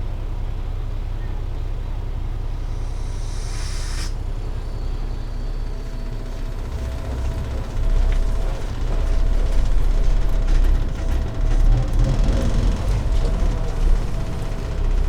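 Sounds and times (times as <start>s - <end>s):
diesel truck engine droning: 0.0s - 3.5s, 4.2s - 15.0s
air hiss: 2.6s - 4.6s.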